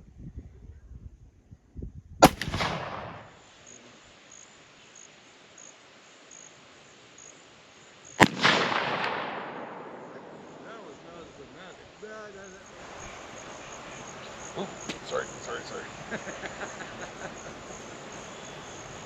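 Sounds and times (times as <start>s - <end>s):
rifle shots with echo: 2.2s - 3.4s, 8.2s - 11.3s.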